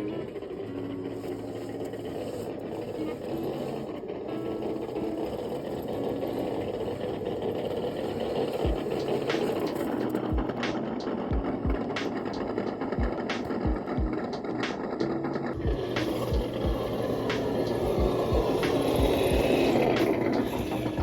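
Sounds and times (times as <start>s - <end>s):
electric motor and gears whining: 0.0s - 21.0s.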